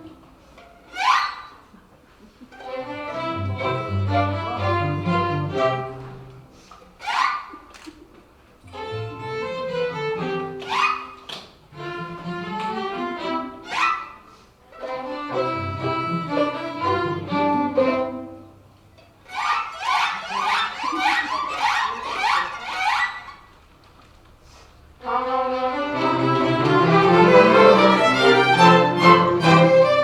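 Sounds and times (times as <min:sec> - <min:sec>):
string orchestra playing: 0:02.5 - 0:06.6, 0:08.7 - 0:23.0, 0:25.0 - 0:30.0.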